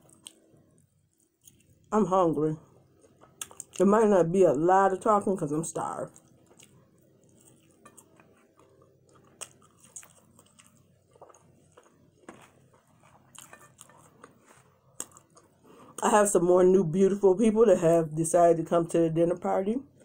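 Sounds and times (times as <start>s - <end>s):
crunchy chewing: 0.0s - 1.9s, 2.8s - 3.8s, 6.1s - 16.0s.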